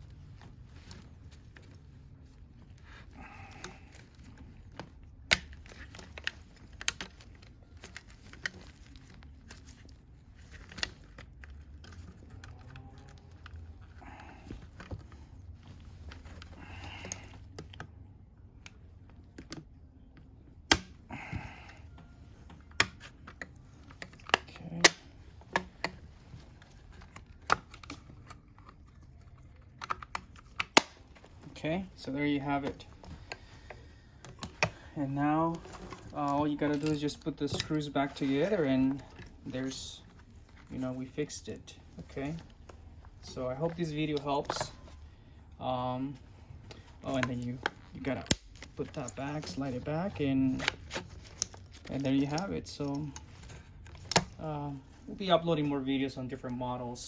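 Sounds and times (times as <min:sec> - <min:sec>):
plastic parts clicking and knocking: 0:02.8 - 0:18.0, 0:18.6 - 0:31.6, 0:46.7 - 0:54.5.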